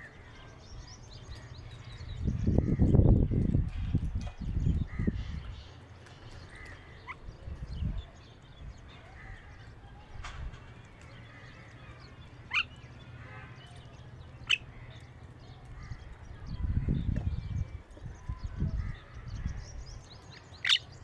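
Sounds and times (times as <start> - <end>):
birds chirping: 0.0 - 21.0
sharp bird calls: 8.8 - 21.0.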